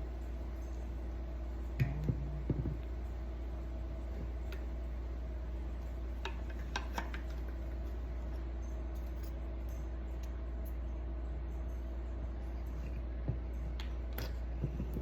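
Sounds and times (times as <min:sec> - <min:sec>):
steady low hum: 0:00.0 - 0:15.0
light clicks and clinks: 0:06.8 - 0:15.0.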